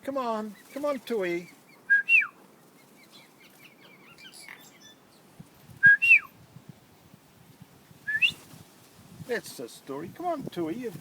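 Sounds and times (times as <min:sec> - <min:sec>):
faint high bird chirps: 0:01.5 - 0:06.3
person whistling a call: 0:01.9 - 0:02.4, 0:05.8 - 0:06.3, 0:08.1 - 0:08.4.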